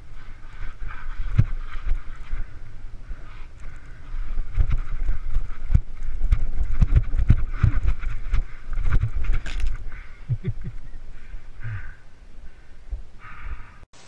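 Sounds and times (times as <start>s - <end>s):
wind on microphone: 0.0s - 13.6s
tyre noise: 3.2s - 10.8s
bike thumps and rattles: 4.5s - 9.8s.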